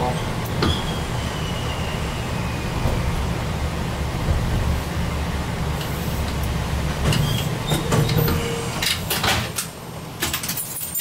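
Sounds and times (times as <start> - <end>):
railcar low rumble: 0.0 - 11.0
clicks and clunks: 6.4 - 10.7.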